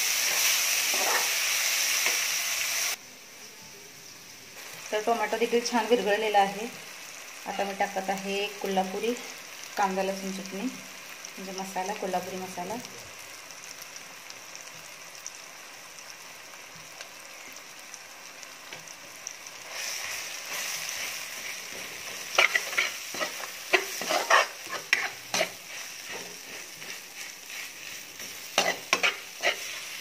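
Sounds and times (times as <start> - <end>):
masala sizzling in oil: 0.0 - 30.0
spoon knocking and scraping pan: 21.6 - 29.9.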